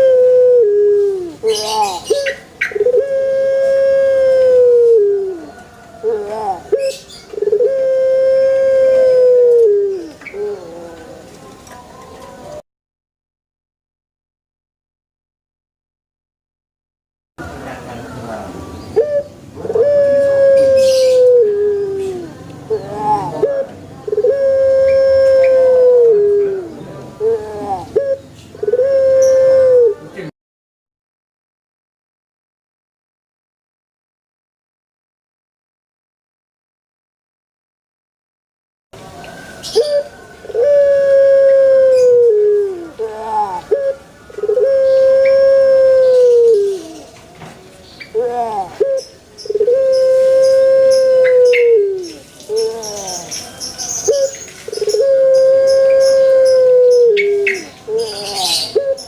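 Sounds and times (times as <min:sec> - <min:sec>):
dove cooing: 0:00.0 - 0:12.6, 0:17.4 - 0:30.3, 0:39.0 - 0:47.3, 0:48.0 - 0:59.0.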